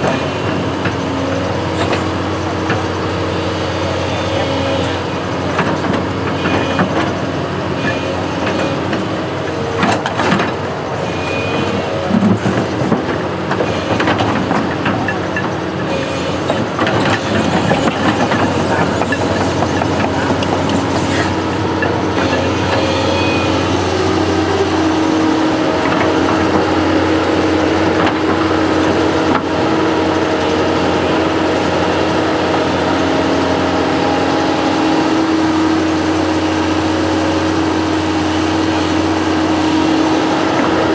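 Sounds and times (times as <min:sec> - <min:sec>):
construction machine engine running: 0:00.0 - 0:40.9
knocks and clanks: 0:11.6 - 0:23.0.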